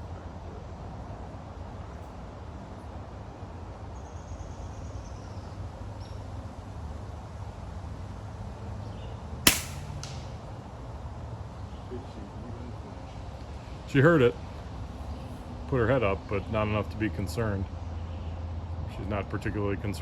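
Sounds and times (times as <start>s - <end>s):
air rifle shot crack: 9.5s - 10.4s.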